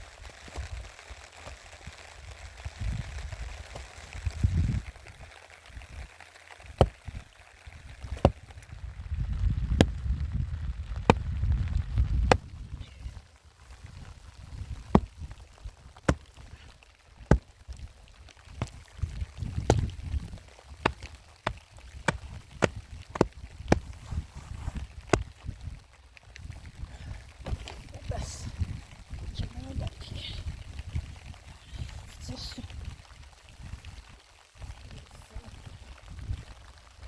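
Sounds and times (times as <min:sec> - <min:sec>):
low rumble: 0:08.3 - 0:13.2
sharp irregular knocks: 0:14.9 - 0:15.1, 0:17.3 - 0:17.5, 0:19.6 - 0:20.0, 0:20.8 - 0:23.9.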